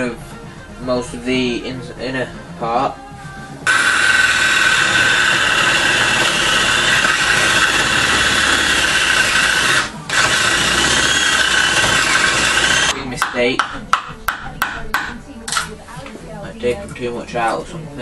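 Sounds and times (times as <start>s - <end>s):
power drill boring through wood: 3.6s - 13.0s.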